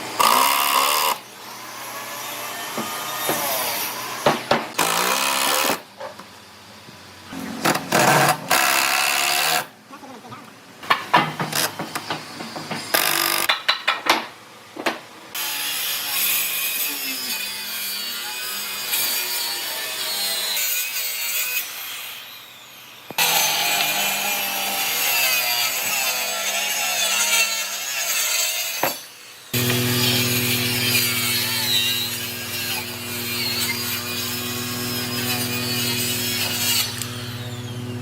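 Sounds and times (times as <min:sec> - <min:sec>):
tool scraping wood: 0:07.3 - 0:08.9, 0:28.8 - 0:37.8.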